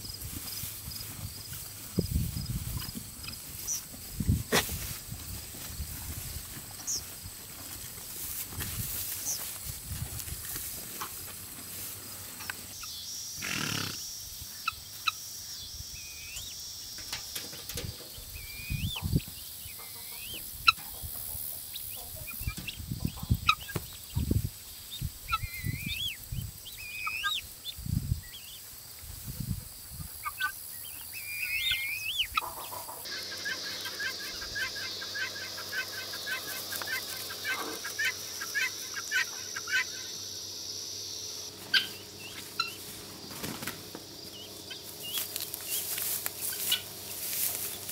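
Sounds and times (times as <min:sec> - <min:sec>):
poultry warbling calls: 0:18.1 - 0:24.4, 0:25.0 - 0:28.6, 0:30.1 - 0:47.9.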